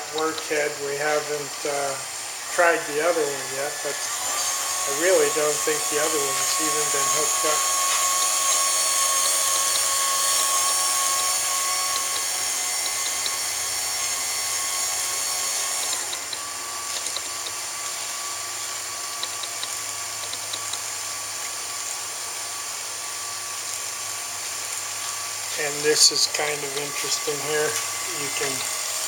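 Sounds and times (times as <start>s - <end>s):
grinder motor whining: 0.0s - 29.0s.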